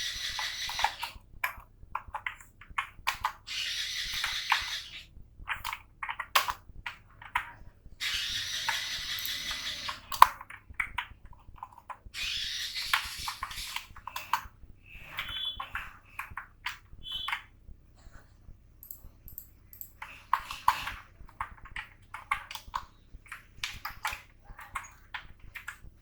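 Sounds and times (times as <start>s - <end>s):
mouse clicks: 18.8s - 25.9s
keyboard typing: 18.8s - 26.0s.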